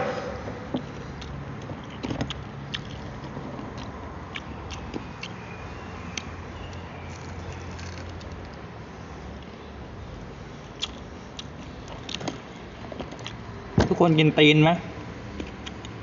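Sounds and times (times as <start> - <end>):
steady low hum: 0.0 - 7.7
person chewing crunchy food: 1.2 - 5.4, 10.8 - 12.2.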